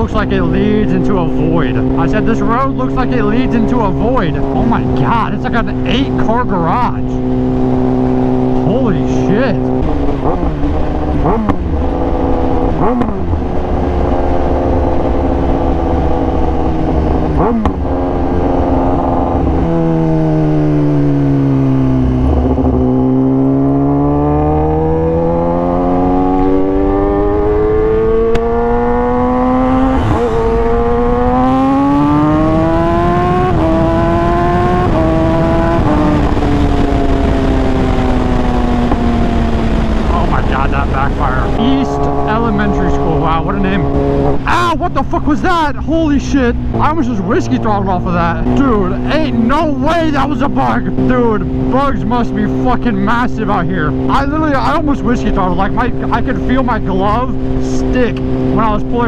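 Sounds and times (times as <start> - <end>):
motorcycle engine running: 0.0 - 59.0
wind rush: 26.4 - 45.4.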